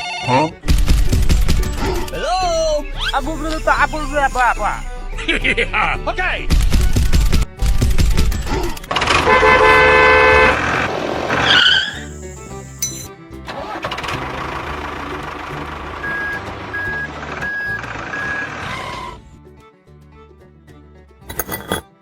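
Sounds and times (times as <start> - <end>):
background music: 0.0 - 10.5
vehicle noise: 1.5 - 12.0
vehicle horn: 9.0 - 10.9.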